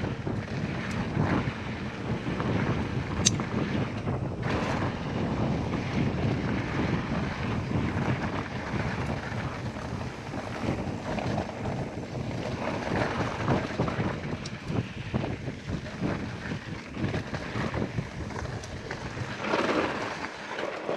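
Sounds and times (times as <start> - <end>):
wind buffeting microphone: 0.0 - 20.9.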